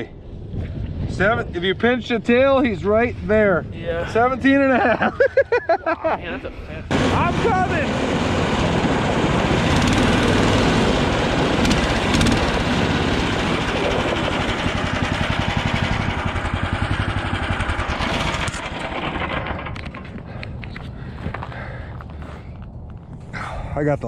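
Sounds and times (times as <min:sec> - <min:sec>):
snow machine engine running: 0:06.9 - 0:20.5.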